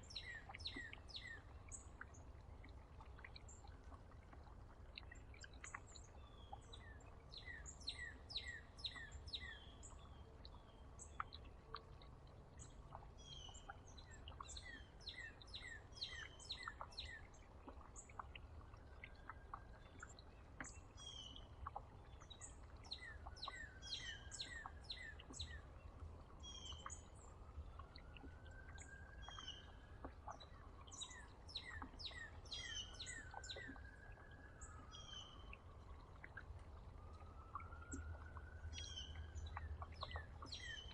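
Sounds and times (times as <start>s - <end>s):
small songbirds chirping: 0.0s - 40.9s.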